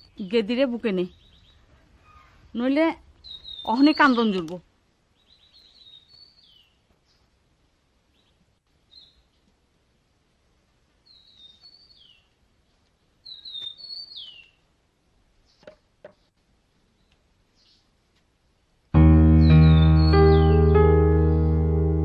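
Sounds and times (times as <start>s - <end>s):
birds chirping: 0.0s - 2.4s, 3.2s - 7.3s, 13.2s - 14.7s, 19.0s - 22.0s.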